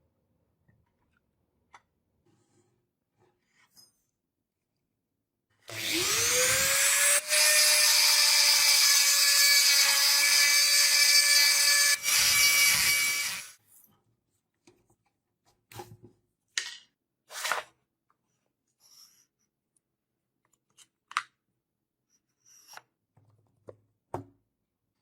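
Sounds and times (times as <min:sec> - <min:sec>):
electric power tool motor running: 0:05.7 - 0:13.6.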